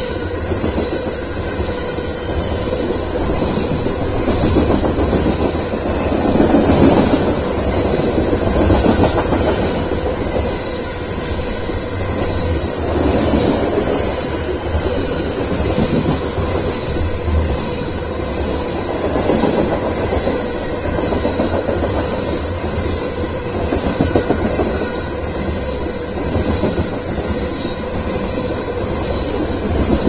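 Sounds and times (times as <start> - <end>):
freight train wheels rumbling on rails: 0.0 - 30.0.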